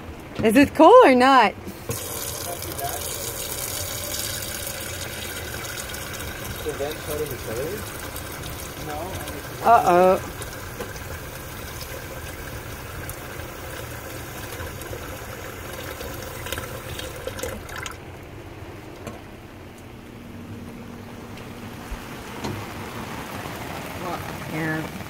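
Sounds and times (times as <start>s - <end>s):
hiss of falling water: 1.6s - 17.6s.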